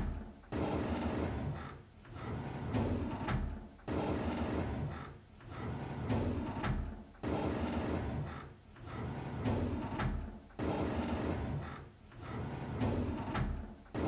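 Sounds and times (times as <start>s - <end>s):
drawer sliding open: 8.9s - 14.0s.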